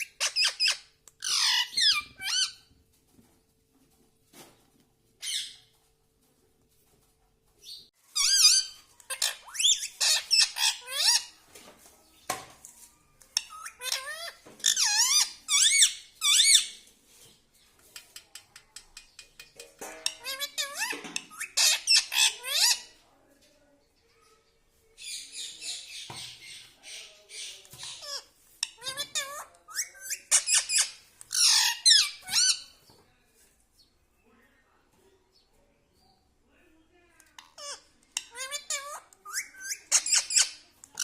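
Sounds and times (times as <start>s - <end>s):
parrot squawking and chattering: 0.0s - 2.7s, 5.2s - 5.6s, 8.1s - 11.4s, 13.2s - 16.8s, 19.9s - 23.0s, 25.0s - 32.8s, 37.4s - 41.0s.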